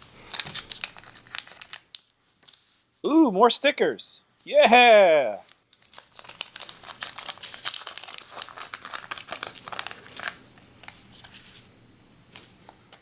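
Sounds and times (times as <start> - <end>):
plastic wrapping crinkling and tearing: 0.0 - 2.7, 5.4 - 11.5.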